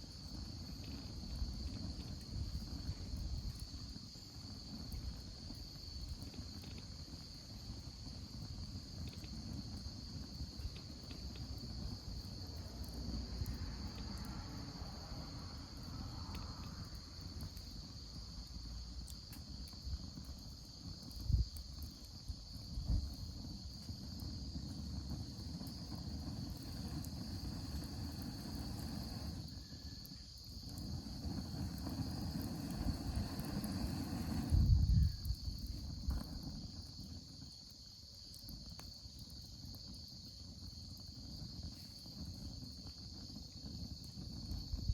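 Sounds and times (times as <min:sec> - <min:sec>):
insects trilling: 0:08.9 - 0:44.9
low uneven rumble: 0:24.6 - 0:29.6, 0:30.6 - 0:36.6.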